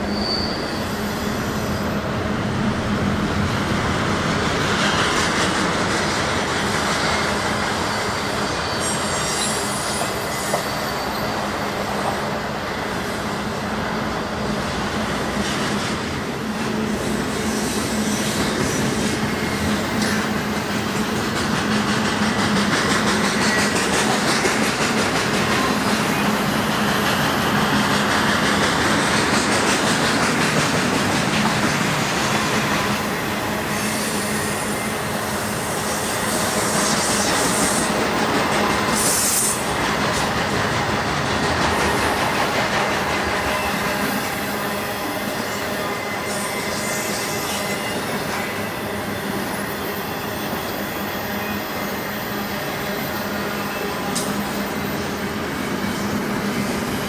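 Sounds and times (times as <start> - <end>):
high-pitched wheel squeals: 0.0 - 2.0, 7.2 - 11.6, 43.5 - 55.1
train wheels rolling on rails: 0.0 - 57.0.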